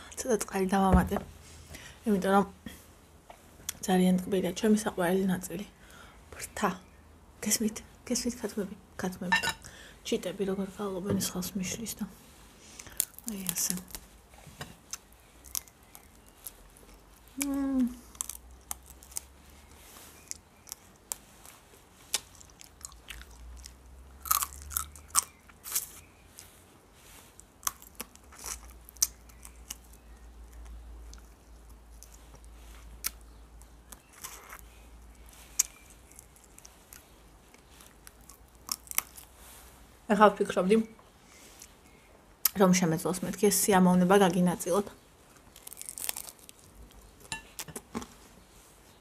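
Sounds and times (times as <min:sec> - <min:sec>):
crunchy chewing of chicken wing: 0:18.0 - 0:26.6, 0:27.3 - 0:39.4, 0:45.3 - 0:48.2.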